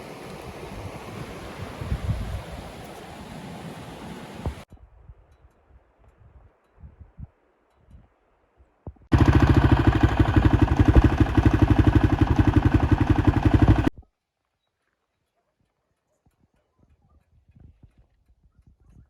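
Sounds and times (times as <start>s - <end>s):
motorcycle engine running: 9.1s - 13.9s.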